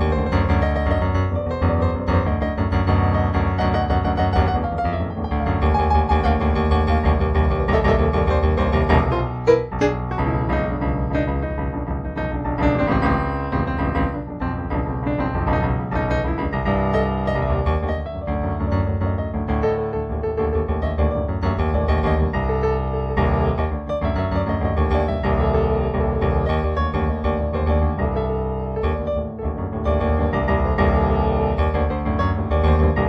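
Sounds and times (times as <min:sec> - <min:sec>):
solo piano music: 0:00.0 - 0:33.0.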